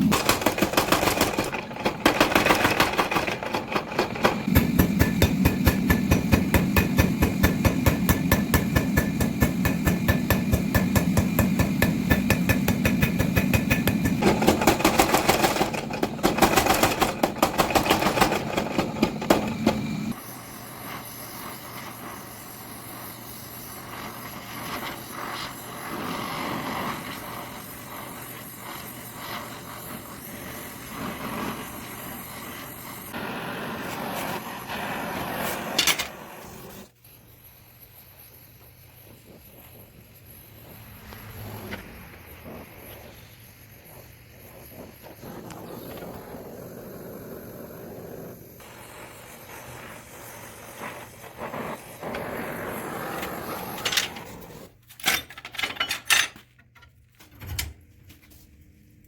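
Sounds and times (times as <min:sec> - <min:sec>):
power hammer forging steel: 0:00.0 - 0:36.9, 0:48.6 - 0:56.4.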